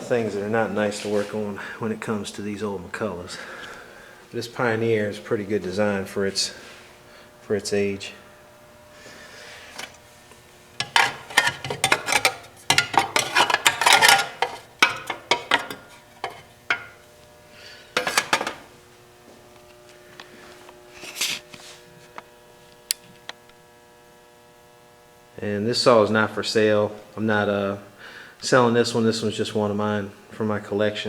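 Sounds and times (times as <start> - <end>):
metal parts clattering and scraping: 10.8 - 17.0, 18.0 - 18.6.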